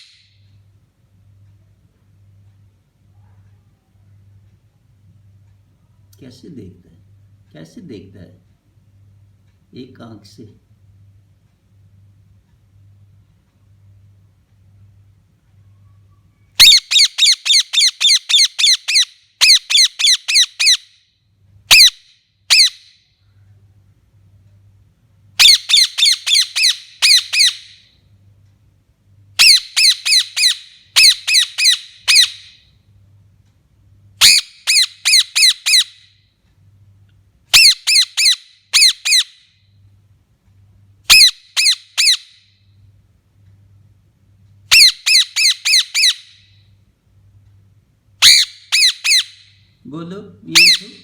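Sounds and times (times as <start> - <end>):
parrot squawking: 16.6 - 20.9, 21.7 - 22.8, 25.4 - 27.9, 29.4 - 32.6, 34.2 - 36.0, 37.5 - 39.4, 41.1 - 42.4, 44.7 - 46.4, 48.2 - 49.6, 50.4 - 51.0.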